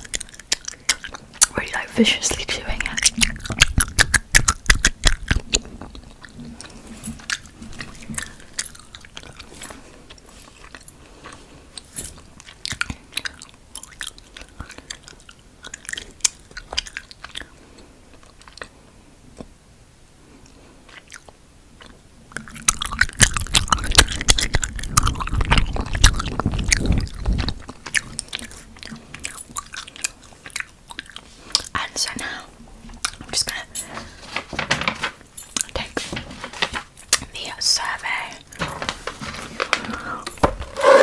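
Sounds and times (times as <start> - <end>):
gum chewing clicks and smacks: 0.0 - 1.5, 2.8 - 18.8, 20.4 - 31.9.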